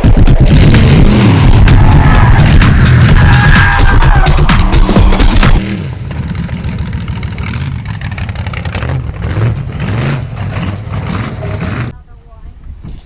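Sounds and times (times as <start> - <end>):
truck engine revving: 0.0 - 11.9
rough gritty noise: 0.0 - 12.0.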